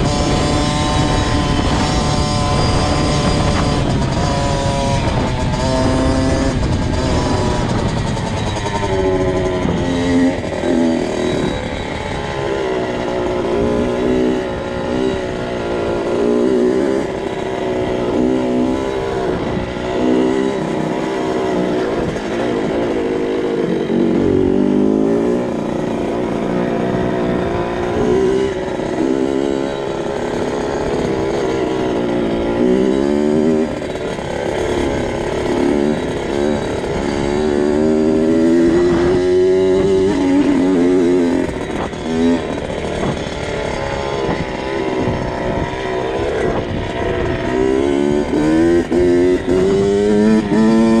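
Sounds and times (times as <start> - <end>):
motorbike engine revving: 0.0 - 51.0.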